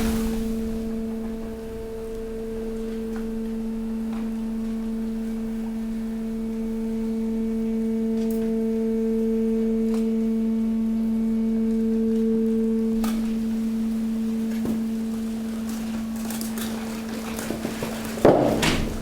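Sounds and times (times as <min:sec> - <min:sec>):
hydraulic pump whining: 0:00.0 - 0:09.0, 0:12.8 - 0:19.0.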